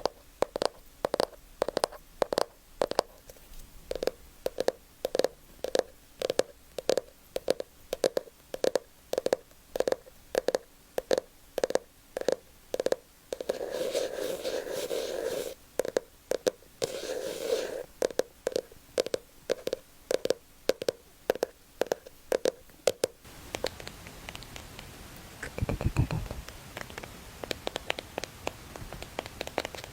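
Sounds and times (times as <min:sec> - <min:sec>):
soft tapping: 0:00.0 - 0:23.8
rustling: 0:13.4 - 0:15.6.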